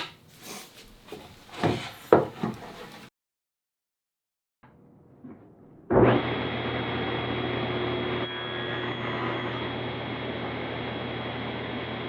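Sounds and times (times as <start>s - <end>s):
high whine of spinning blade: 6.2s - 12.0s
table saw motor humming: 6.2s - 12.0s.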